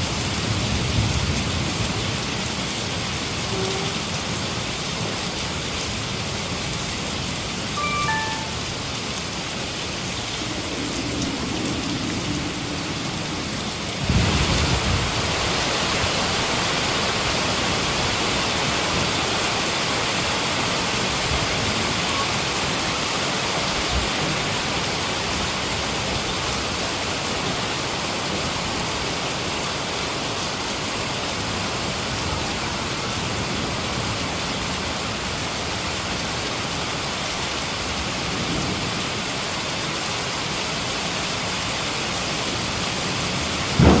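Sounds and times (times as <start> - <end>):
heavy rain: 0.0 - 44.0
thunder rumble: 10.2 - 16.2, 43.6 - 44.0.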